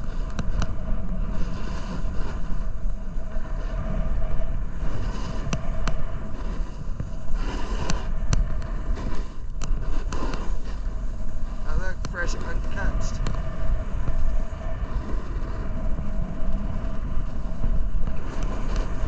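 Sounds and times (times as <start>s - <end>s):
wind buffeting microphone: 0.0s - 19.0s
snowboard scraping icy snow: 1.2s - 2.9s, 4.7s - 5.5s, 6.3s - 8.1s, 8.7s - 12.9s, 16.2s - 19.0s.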